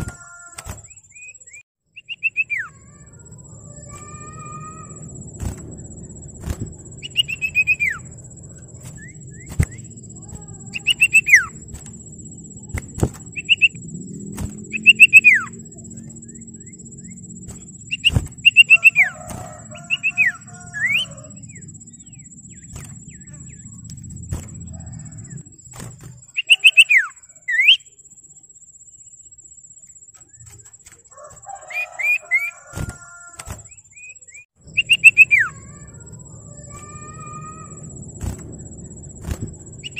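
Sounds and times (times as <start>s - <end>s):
sharp clicks: 0.0s - 0.9s, 8.6s - 15.2s
bird whistled calls: 0.0s - 3.0s, 6.9s - 8.2s, 8.8s - 12.0s, 12.6s - 23.8s, 26.3s - 27.9s, 31.5s - 37.8s, 39.2s - 39.9s
steady high whine: 0.0s - 39.9s
bird chattering notes: 6.8s - 13.9s, 14.6s - 25.4s, 26.2s - 27.9s, 34.7s - 37.8s.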